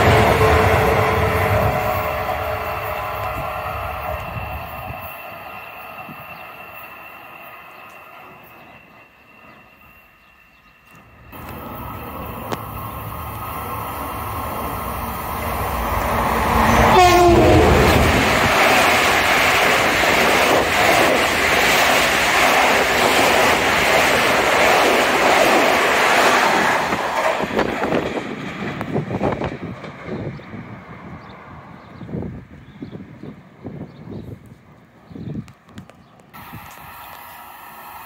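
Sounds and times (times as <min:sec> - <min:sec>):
train horn blast: 0:00.0 - 0:04.1, 0:16.0 - 0:18.4
train wheels rumbling on rail: 0:00.0 - 0:38.0.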